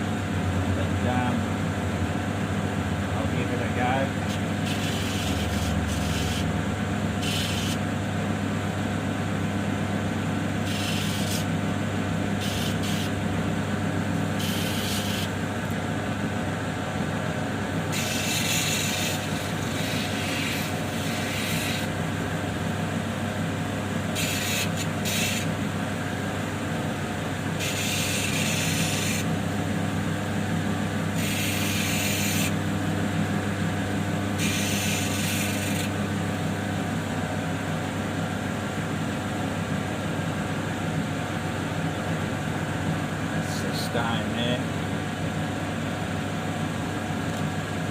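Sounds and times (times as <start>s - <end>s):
grinding wheel motor hum: 0.0s - 36.8s
gritty hiss of stone grinding: 4.3s - 6.5s, 7.2s - 7.8s, 10.7s - 11.5s, 12.4s - 13.1s, 14.4s - 15.3s, 18.0s - 21.9s, 24.2s - 25.5s, 27.6s - 29.3s, 31.2s - 32.5s, 34.4s - 35.9s.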